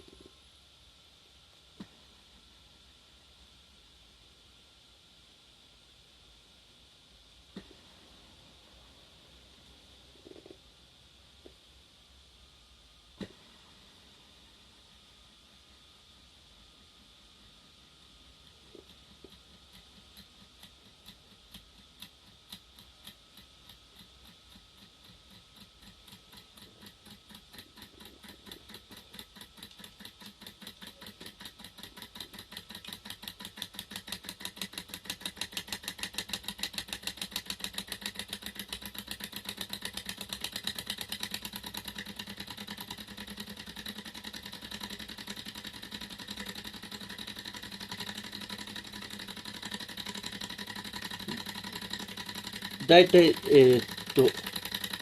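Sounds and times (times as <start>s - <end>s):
engine model mechanical ticking: 18.7s - 55.0s.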